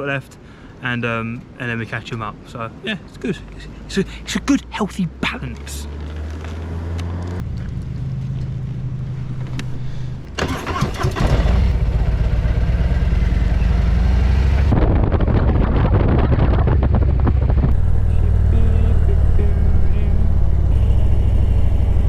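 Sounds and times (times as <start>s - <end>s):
motorcycle engine running: 11.1s - 22.0s.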